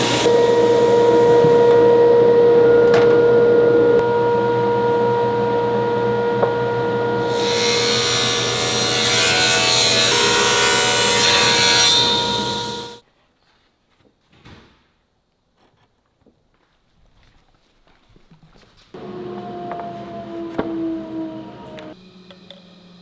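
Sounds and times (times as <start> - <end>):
power tool humming: 0.0 - 2.8, 4.0 - 13.0.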